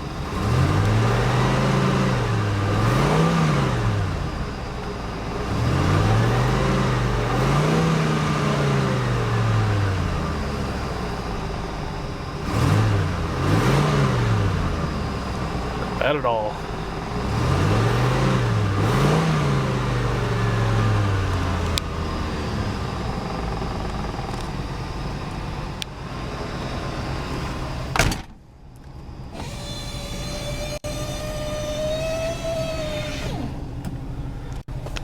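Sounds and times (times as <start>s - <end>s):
car engine revving: 0.0s - 28.0s, 29.3s - 34.8s
electric motor whining: 29.3s - 34.6s.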